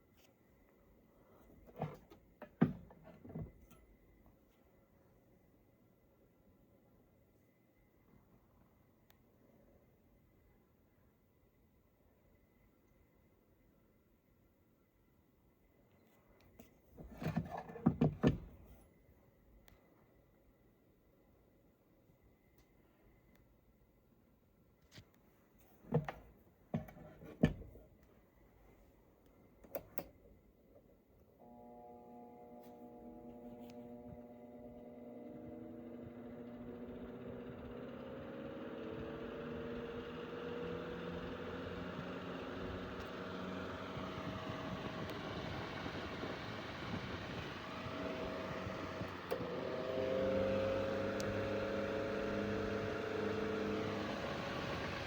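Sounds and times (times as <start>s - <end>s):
handling knocks and clicks: 25.7s - 27.8s
electric fan motor humming: 31.4s - 55.0s.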